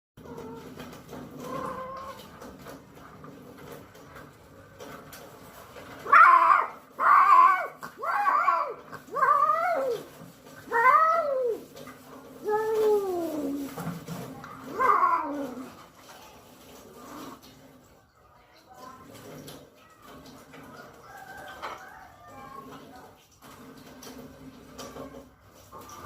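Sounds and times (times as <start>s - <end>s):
cat yowling: 1.4s - 2.2s, 6.0s - 10.1s, 14.7s - 15.7s.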